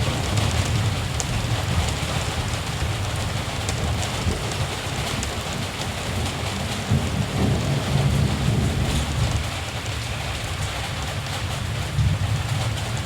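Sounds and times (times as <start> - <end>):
distant thunder rumbling: 6.0 - 9.9.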